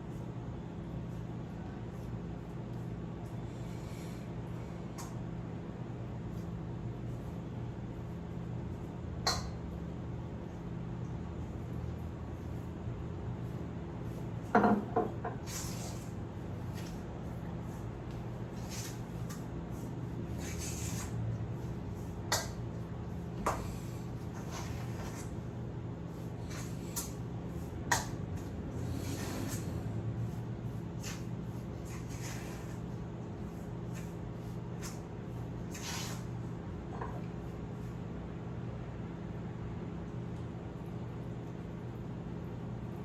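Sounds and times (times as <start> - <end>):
steady low hum: 0.0 - 43.0
soft rubbing and rustling: 15.4 - 36.5.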